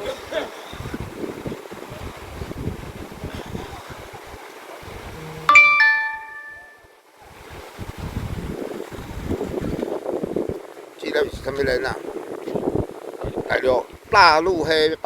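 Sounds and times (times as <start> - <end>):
wind noise on microphone: 0.0 - 5.5, 7.2 - 15.0
two-note chime: 5.5 - 6.8.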